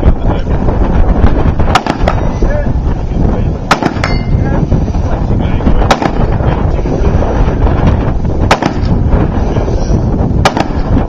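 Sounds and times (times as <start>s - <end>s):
steady low rumble: 0.0s - 11.0s
gunshots: 1.6s - 2.3s, 3.7s - 4.2s, 5.8s - 6.4s, 8.4s - 9.2s, 10.4s - 11.0s.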